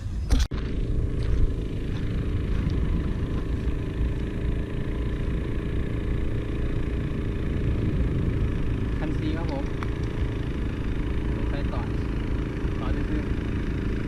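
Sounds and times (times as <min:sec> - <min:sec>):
engine idling: 0:00.5 - 0:14.0.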